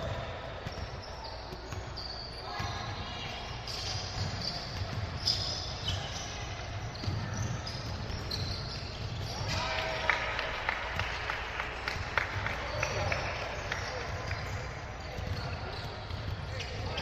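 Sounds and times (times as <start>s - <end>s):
basketball dribbling thuds: 0.0s - 9.6s, 14.1s - 17.0s
sneaker squeaks: 0.0s - 9.9s, 11.9s - 17.0s.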